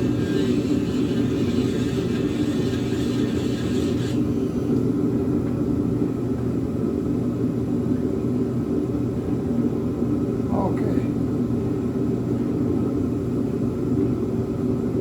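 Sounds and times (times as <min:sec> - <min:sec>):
grinding hiss: 0:00.0 - 0:04.8
rotary tool motor running: 0:00.0 - 0:04.9.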